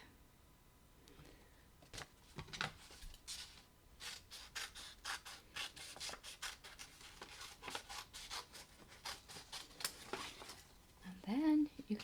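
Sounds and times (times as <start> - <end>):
scissors snipping paper: 4.0 - 10.6.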